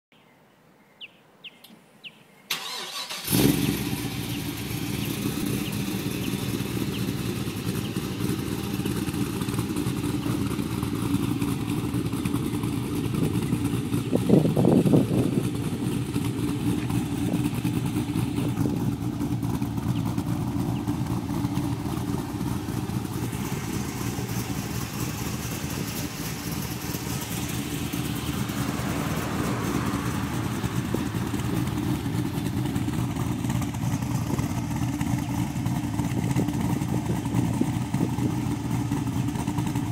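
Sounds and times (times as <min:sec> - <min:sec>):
engine cranking: 0:02.5 - 0:39.9
car engine lumpy idle: 0:02.6 - 0:39.9.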